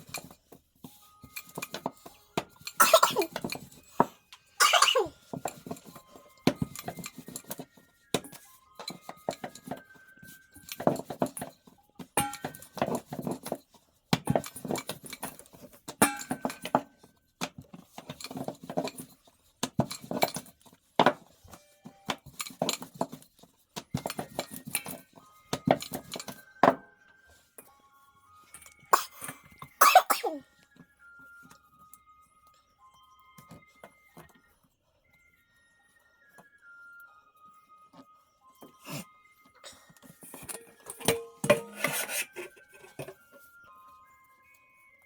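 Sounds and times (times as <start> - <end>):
dishes and utensils clinking: 0.0 - 17.1, 17.8 - 26.9, 28.5 - 30.4, 39.6 - 43.4.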